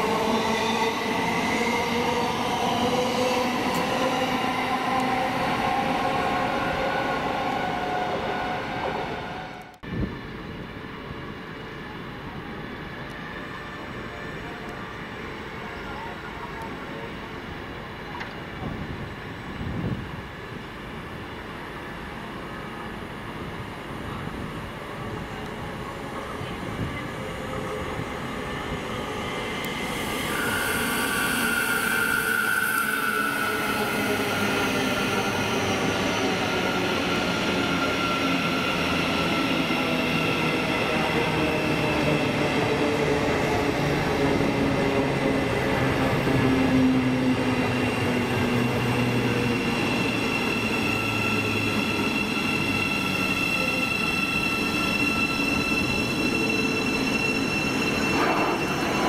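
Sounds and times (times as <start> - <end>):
train whining tones: 25.1 - 59.0.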